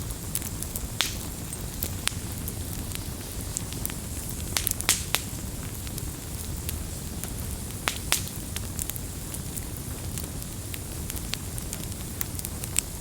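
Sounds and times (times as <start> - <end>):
campfire burning: 0.0 - 13.0
fire crackling and popping: 0.0 - 13.0.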